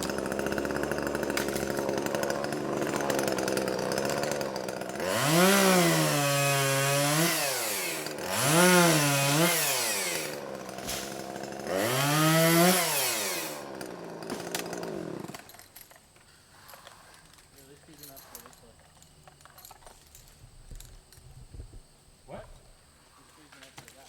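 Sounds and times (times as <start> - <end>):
chainsaw idling and revving: 0.0 - 15.7
chainsaw cutting timber: 0.0 - 15.8.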